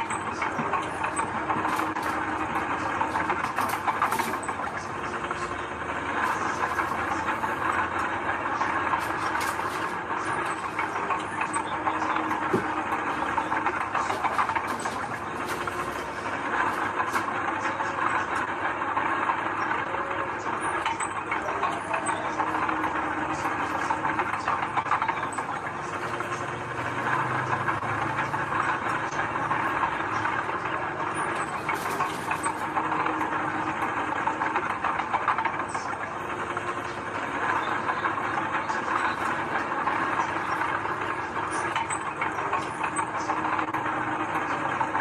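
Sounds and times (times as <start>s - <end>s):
heavy machinery diesel engine running: 0.0s - 45.0s.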